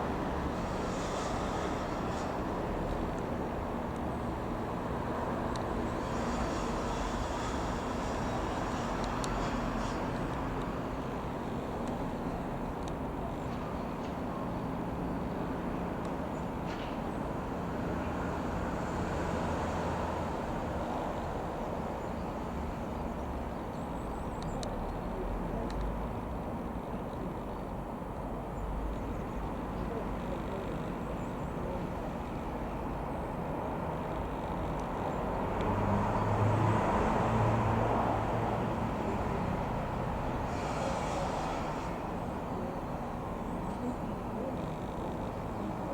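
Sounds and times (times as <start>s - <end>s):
light aircraft engine drone: 0.0s - 45.9s
light plane engine droning: 28.9s - 45.9s.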